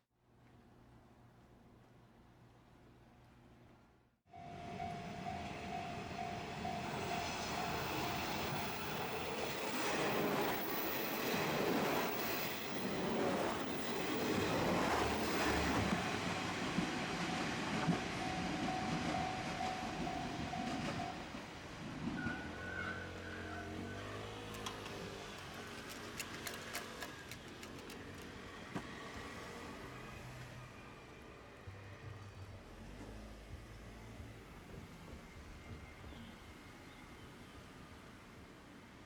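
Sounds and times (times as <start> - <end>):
level crossing alarm tone: 4.3 - 8.2
diesel train passing: 4.3 - 39.0.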